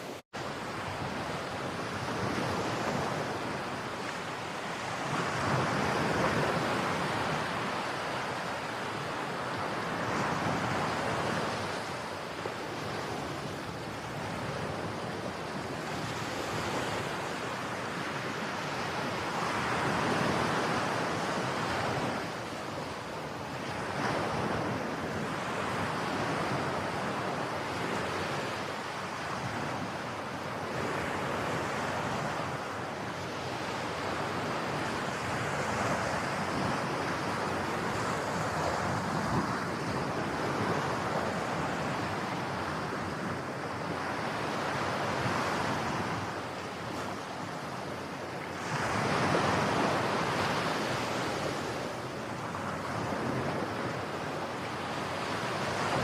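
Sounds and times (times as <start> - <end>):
sea waves breaking on shore: 0.0 - 56.0
wind on microphone: 0.0 - 56.0.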